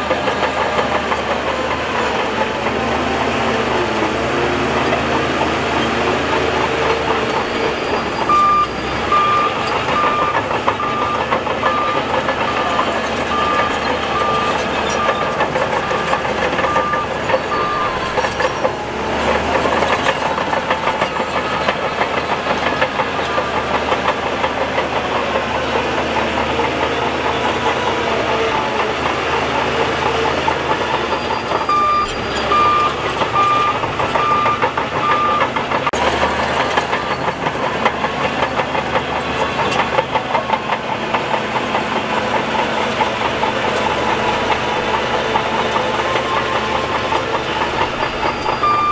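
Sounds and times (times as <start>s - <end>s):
bulldozer diesel engine: 0.0s - 48.9s
steel tracks clanking: 0.0s - 48.9s
reversing alarm beeping: 6.2s - 23.9s, 31.1s - 36.0s, 45.5s - 48.9s.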